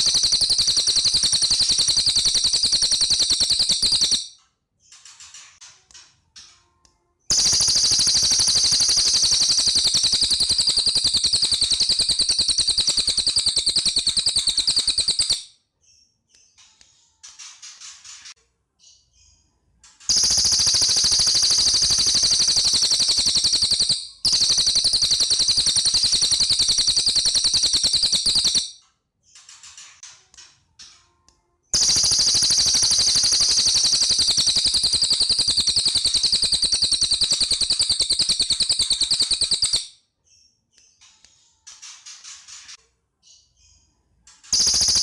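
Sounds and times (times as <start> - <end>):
bird singing fast rattling trills: 0.0 - 4.3, 7.3 - 15.5, 20.1 - 28.7, 31.8 - 39.9, 44.5 - 45.0
faint bird chirps: 0.0 - 45.0.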